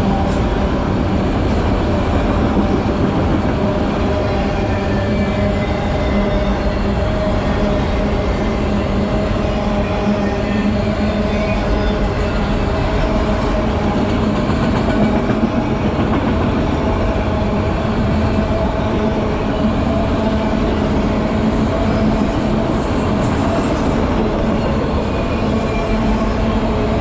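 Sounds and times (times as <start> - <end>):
freight train rumbling past: 0.0 - 27.0.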